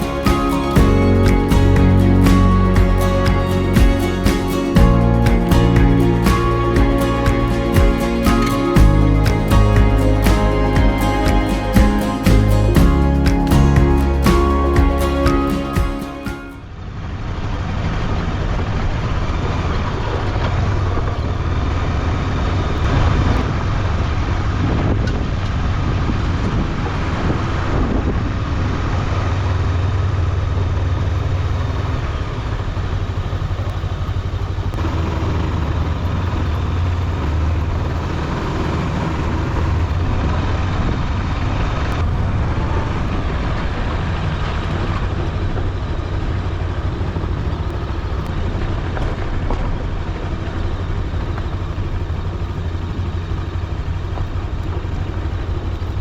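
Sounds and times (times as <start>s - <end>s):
motorcycle engine running: 0.0s - 15.7s, 19.1s - 56.0s
wind rushing over microphone: 22.8s - 29.6s.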